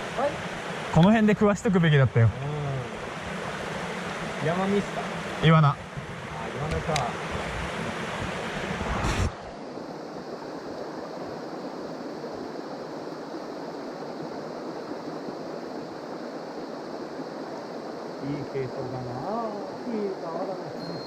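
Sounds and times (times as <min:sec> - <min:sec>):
stream water rushing: 0:00.0 - 0:21.0
low rumble: 0:08.5 - 0:09.6.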